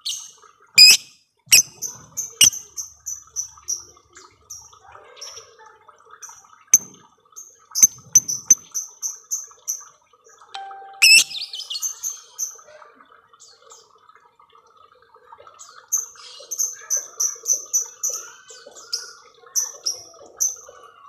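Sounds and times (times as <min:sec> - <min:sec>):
high sharp bird chirps: 0:00.8 - 0:01.8, 0:10.6 - 0:11.9
lovebird squawk: 0:00.8 - 0:01.8, 0:11.0 - 0:11.6.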